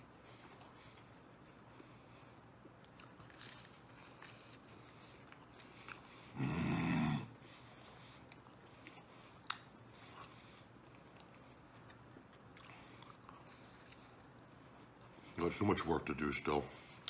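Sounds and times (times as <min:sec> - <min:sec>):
man chewing: 0:00.0 - 0:15.4
short low vocal sound: 0:06.4 - 0:07.4.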